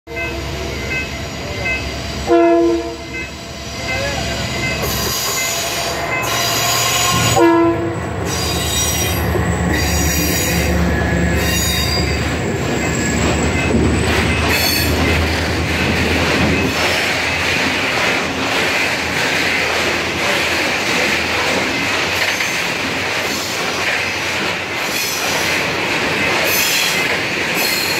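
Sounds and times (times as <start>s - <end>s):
diesel locomotives running: 0.1s - 27.9s
train wheels on rails: 0.1s - 27.9s
train horn blasts: 1.7s - 3.3s, 5.1s - 12.1s.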